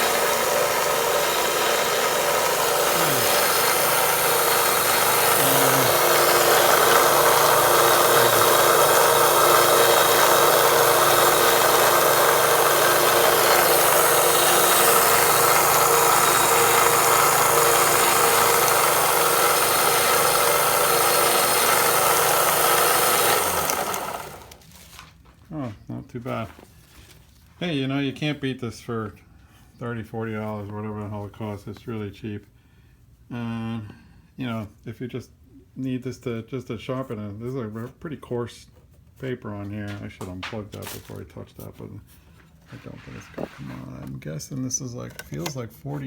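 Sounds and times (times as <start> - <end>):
belt sander grinding wood: 0.0 - 24.8.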